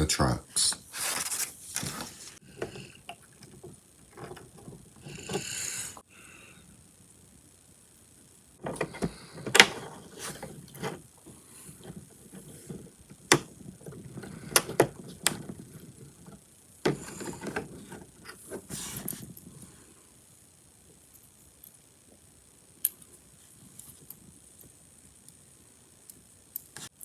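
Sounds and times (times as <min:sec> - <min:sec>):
plastic parts clicking and tapping: 0:11.7 - 0:19.2.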